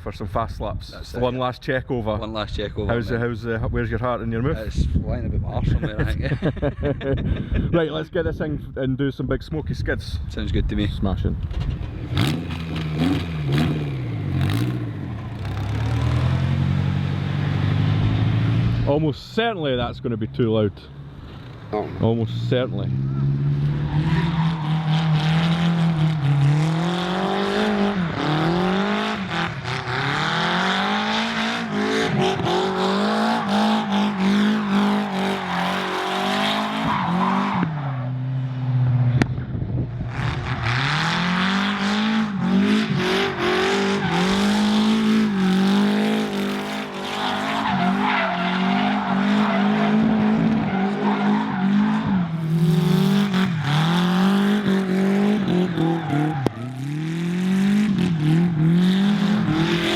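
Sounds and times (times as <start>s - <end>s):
car engine revving: 11.7s - 18.9s, 20.9s - 59.9s.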